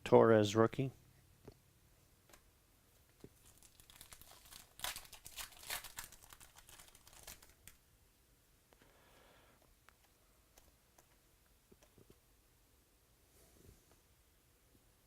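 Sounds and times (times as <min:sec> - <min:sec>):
foil wrapper crinkling and tearing: 0:03.4 - 0:07.8.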